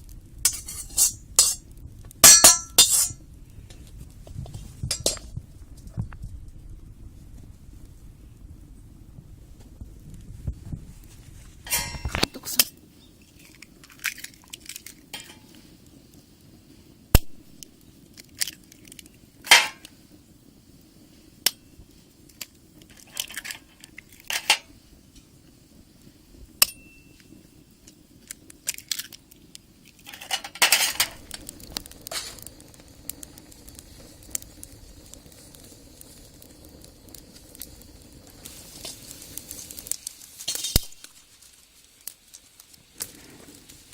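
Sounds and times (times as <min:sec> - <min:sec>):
utensils clinking on pans: 0:00.5 - 0:01.6, 0:02.2 - 0:03.2, 0:04.9 - 0:05.2, 0:11.7 - 0:12.7, 0:15.1 - 0:15.5, 0:30.1 - 0:31.2, 0:40.5 - 0:40.9.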